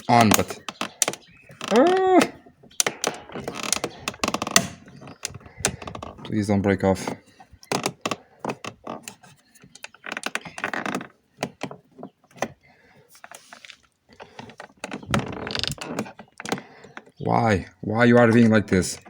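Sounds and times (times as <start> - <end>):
plastic trim clicking and knocking: 0.2 - 6.0.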